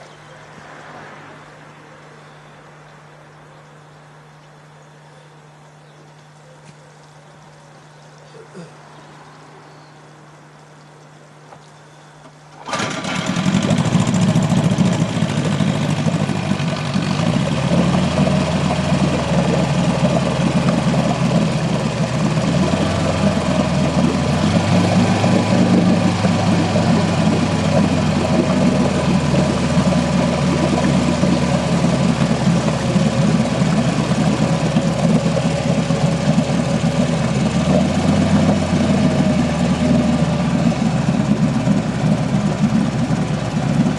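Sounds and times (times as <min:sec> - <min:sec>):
boat engine running: 0:00.0 - 0:43.9.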